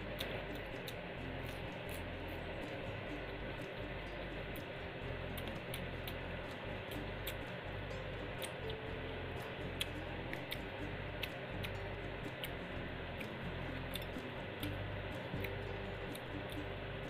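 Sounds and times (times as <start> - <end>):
chewing: 0.0 - 2.9, 3.6 - 7.6, 8.2 - 8.8, 9.4 - 12.6, 13.2 - 16.8
steady low hum: 0.0 - 17.0
sharp mouth clicks and smacks: 0.1 - 2.8, 5.4 - 7.6, 13.2 - 14.8.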